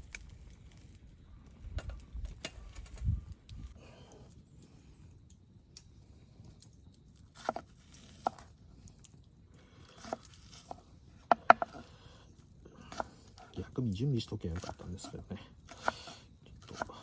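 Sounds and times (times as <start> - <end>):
faint steady background noise: 0.0 - 17.0
hard objects clicking and knocking: 11.3 - 11.9.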